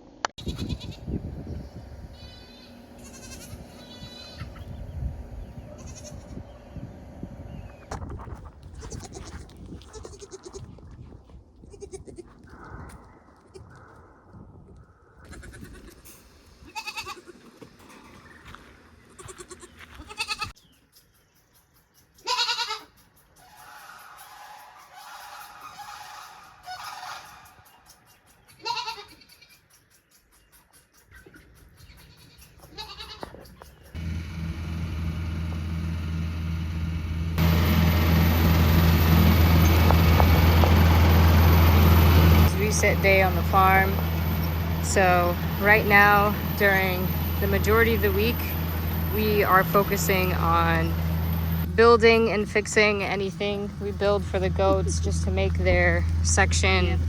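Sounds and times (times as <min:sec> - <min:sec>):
engine humming: 0:00.1 - 0:10.3, 0:32.1 - 0:57.0
goats bleating: 0:02.2 - 0:04.6, 0:05.7 - 0:06.4, 0:15.3 - 0:16.0, 0:16.6 - 0:17.5, 0:19.2 - 0:20.5, 0:22.2 - 0:22.9, 0:28.5 - 0:29.6, 0:32.1 - 0:33.4.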